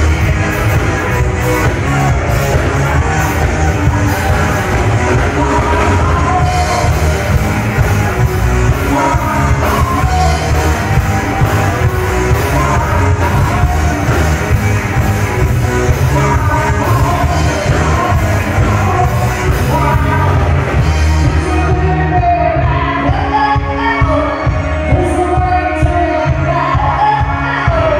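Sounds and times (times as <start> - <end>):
live rock band playing: 0.0 - 27.9
person singing: 0.0 - 27.9.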